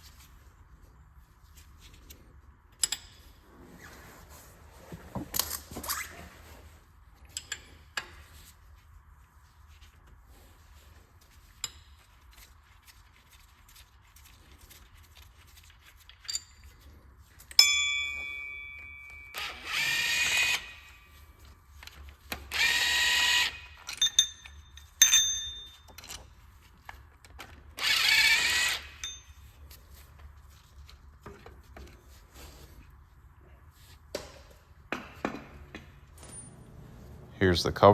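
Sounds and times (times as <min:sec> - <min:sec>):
metal tools clinking: 0:17.4 - 0:19.6, 0:23.7 - 0:26.4, 0:28.9 - 0:29.6
power tool whirring: 0:19.3 - 0:21.1, 0:22.4 - 0:23.9, 0:27.8 - 0:29.2.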